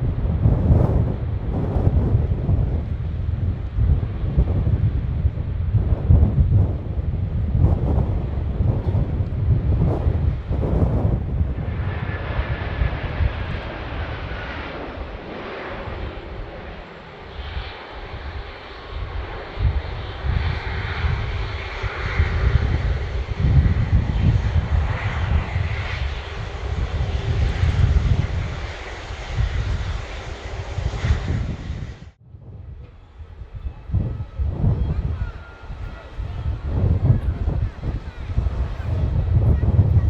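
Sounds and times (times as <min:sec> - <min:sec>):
jet airliner engines rumbling: 0:00.0 - 0:40.0
faint engine whine: 0:11.1 - 0:31.6.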